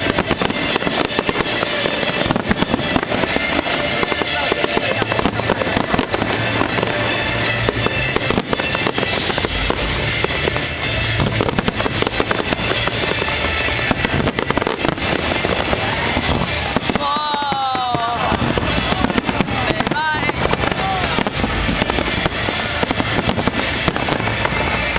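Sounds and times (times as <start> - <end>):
fireworks crackling and banging: 0.0 - 24.9
music playing: 0.0 - 24.9.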